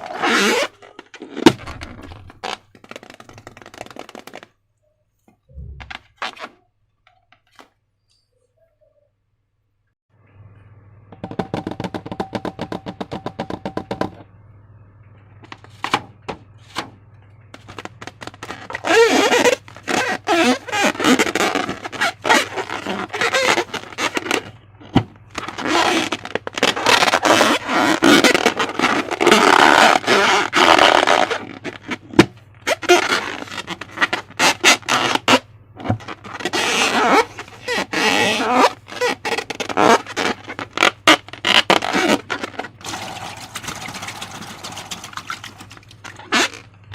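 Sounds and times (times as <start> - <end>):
low steady hum: 7.9 - 19.9
slime squelching by hand: 36.0 - 46.7.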